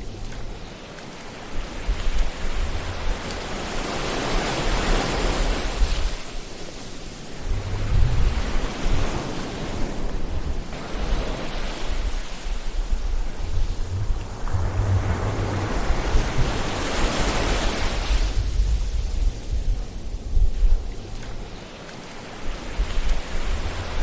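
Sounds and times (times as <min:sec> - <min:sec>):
ocean waves surging: 0:00.0 - 0:24.0.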